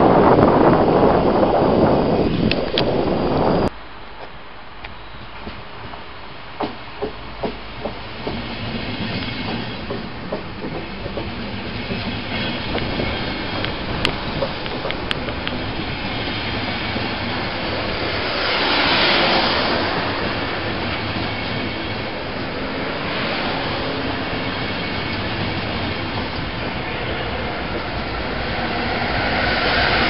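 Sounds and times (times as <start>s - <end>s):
rush of train noise: 0.0s - 30.0s
train wheels clacking over rails: 6.6s - 30.0s.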